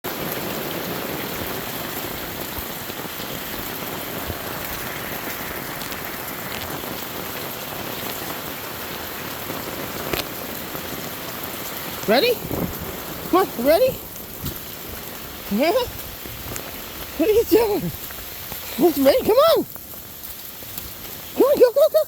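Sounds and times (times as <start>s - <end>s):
steady rain pattering: 0.0s - 22.0s.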